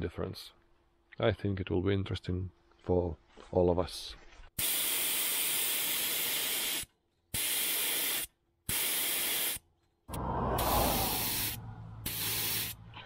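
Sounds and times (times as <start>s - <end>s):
bursts of hissing: 4.6s - 12.8s
low rumbling sound: 10.1s - 13.0s.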